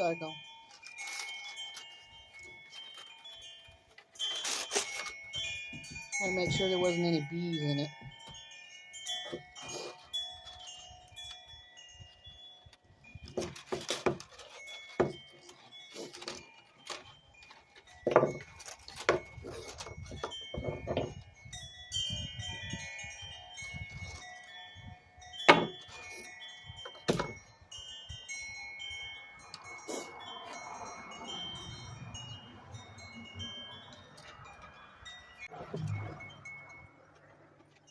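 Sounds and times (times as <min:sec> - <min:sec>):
wind chimes ringing: 0:00.0 - 0:37.9
handling clicks and knocks: 0:13.2 - 0:21.3, 0:25.4 - 0:27.5.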